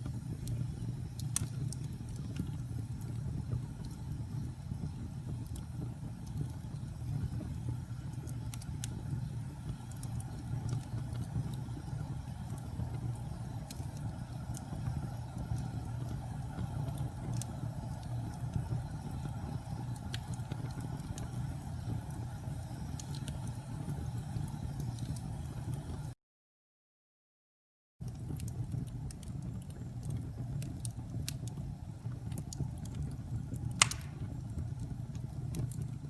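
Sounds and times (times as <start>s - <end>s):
fire crackling and popping: 0.0s - 26.1s, 28.0s - 36.0s
fire flame rumble: 0.0s - 26.1s, 28.0s - 36.0s.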